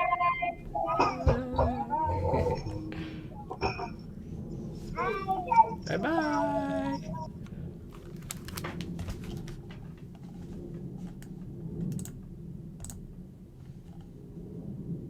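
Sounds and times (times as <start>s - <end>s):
low room hum: 0.0s - 15.0s
keyboard typing clicks: 11.2s - 12.2s, 12.8s - 13.0s.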